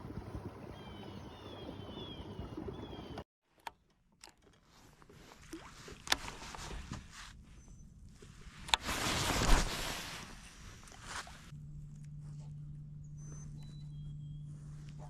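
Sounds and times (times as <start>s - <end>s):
water and wind noise: 0.0s - 11.6s
small clicks and knocks: 3.5s - 4.7s.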